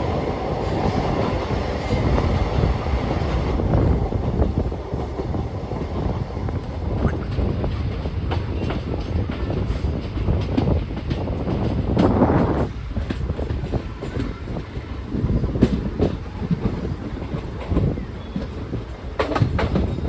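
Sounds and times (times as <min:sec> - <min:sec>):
train rumbling along track: 0:00.0 - 0:20.0
wheels clicking over rail joints: 0:07.0 - 0:20.0.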